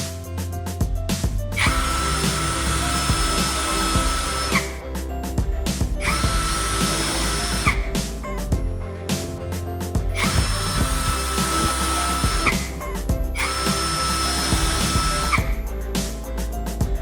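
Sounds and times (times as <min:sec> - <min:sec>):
background music: 0:00.0 - 0:17.0
power tool motor whine: 0:01.6 - 0:04.8, 0:06.0 - 0:08.4, 0:10.2 - 0:15.7.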